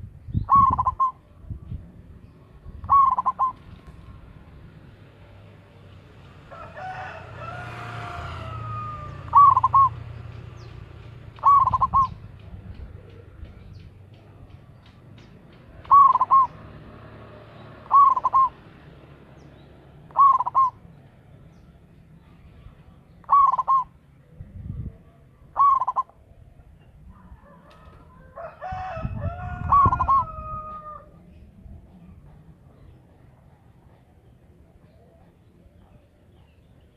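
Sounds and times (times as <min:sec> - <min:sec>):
dove cooing: 0:00.4 - 0:01.4, 0:02.6 - 0:03.8, 0:06.5 - 0:10.3, 0:11.3 - 0:13.6, 0:15.8 - 0:16.7, 0:17.8 - 0:18.7, 0:20.1 - 0:20.9, 0:23.2 - 0:24.0, 0:25.4 - 0:26.3, 0:27.1 - 0:36.1
rooster crowing: 0:06.5 - 0:09.8, 0:27.1 - 0:31.2.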